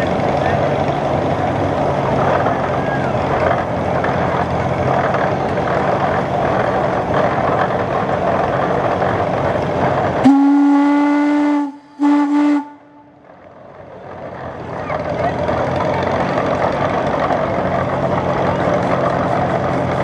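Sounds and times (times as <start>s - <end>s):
steady noisy din: 0.0s - 20.0s
steam engine whistle blasts: 10.2s - 13.0s.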